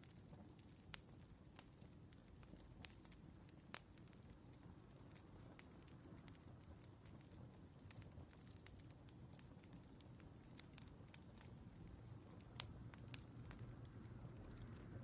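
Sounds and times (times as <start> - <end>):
firewood crackling: 0.0 - 15.0
low steady rumble: 9.1 - 15.0.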